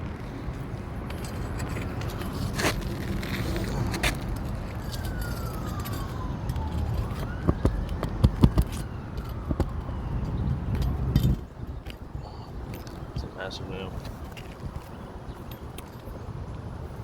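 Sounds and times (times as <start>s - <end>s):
siren wailing: 3.8s - 11.1s.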